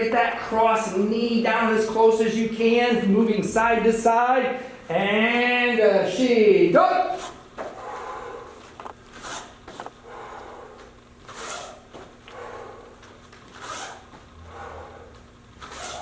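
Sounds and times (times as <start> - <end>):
feet swishing on floor: 7.2 - 16.0.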